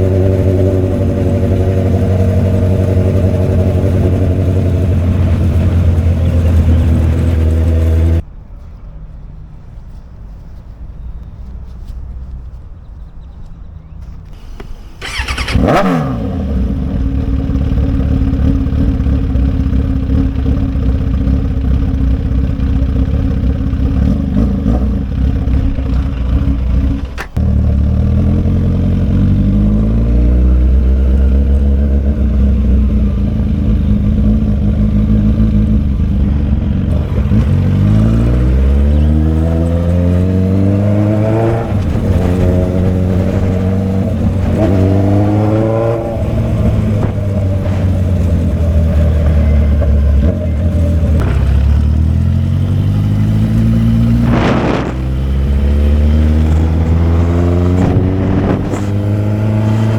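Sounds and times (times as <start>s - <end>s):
motorcycle engine running: 0.0s - 8.2s, 15.0s - 59.9s
falling pitch sweep: 53.2s - 59.9s.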